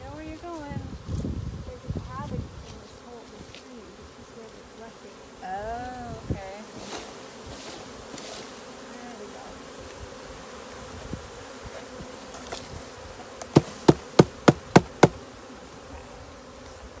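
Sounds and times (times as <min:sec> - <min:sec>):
bee swarm buzzing: 0:00.0 - 0:17.0
sharp knocks: 0:13.6 - 0:15.2.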